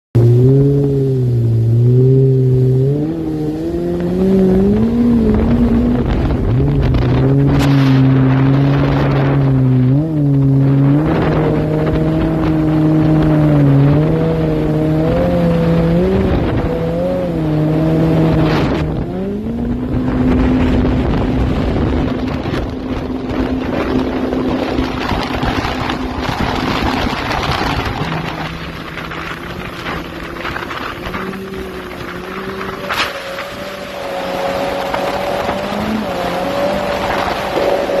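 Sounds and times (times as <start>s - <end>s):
wind: 0.1s - 38.0s
jet ski engine revving: 0.2s - 38.0s
rushing water spray: 19.7s - 38.0s.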